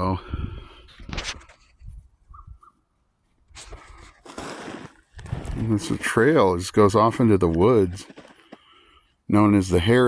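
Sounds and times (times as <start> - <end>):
footsteps scuffing on trail: 3.6 - 6.2, 7.5 - 8.7.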